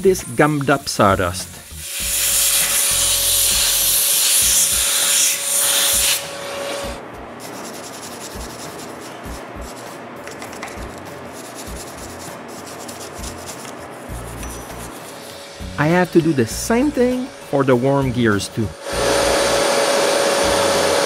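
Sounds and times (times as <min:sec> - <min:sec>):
compressed air hissing: 0:00.0 - 0:10.2, 0:10.8 - 0:21.0
wire brush scrubbing: 0:07.4 - 0:17.8.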